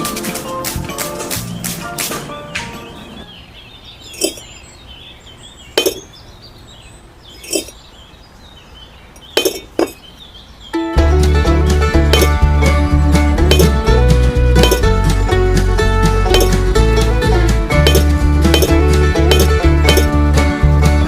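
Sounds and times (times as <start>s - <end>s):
background music: 0.0s - 3.2s, 10.8s - 21.0s
small hard objects clinking: 4.1s - 4.4s, 5.8s - 6.0s, 7.4s - 7.8s, 9.2s - 10.0s, 13.5s - 13.8s, 14.6s - 14.9s, 16.3s - 16.6s, 17.8s - 20.1s.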